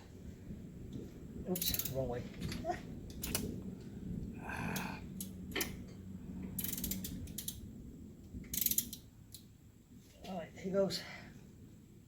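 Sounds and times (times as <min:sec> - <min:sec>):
steady low hum: 0:00.0 - 0:12.0
ratchet wrench clicking: 0:01.6 - 0:02.0, 0:06.6 - 0:07.6, 0:08.5 - 0:09.4.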